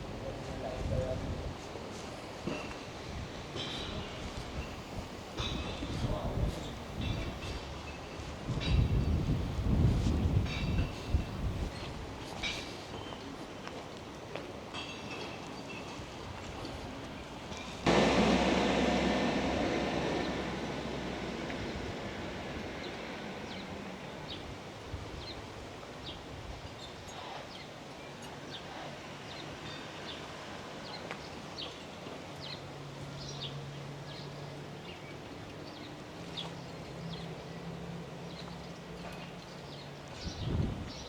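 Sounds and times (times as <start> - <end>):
loud rushing noise: 4.6 - 7.6, 17.9 - 24.3
low steady hum: 17.9 - 24.3.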